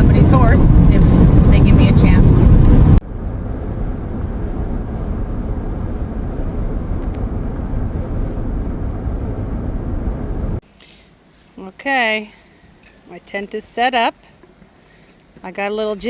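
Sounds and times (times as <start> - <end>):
car driving from inside cabin: 0.0 - 10.6.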